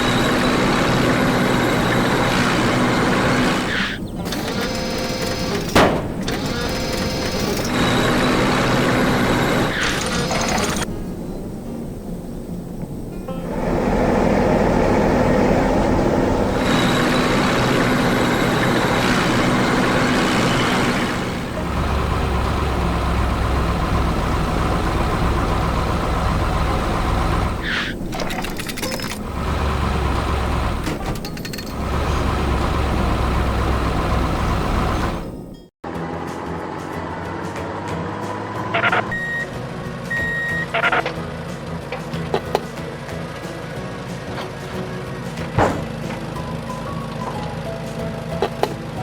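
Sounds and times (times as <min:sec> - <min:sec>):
dense machine noise: 0:00.0 - 0:37.2
diesel engine rumbling: 0:00.0 - 0:49.0.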